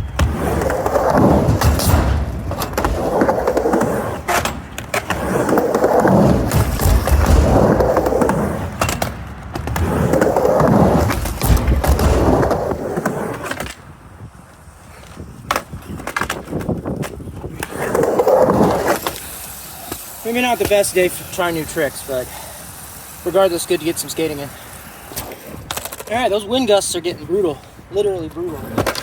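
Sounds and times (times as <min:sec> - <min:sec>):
skateboard clacking on ramp: 0:00.0 - 0:13.8
skateboard wheels rolling on ramp: 0:00.0 - 0:29.0.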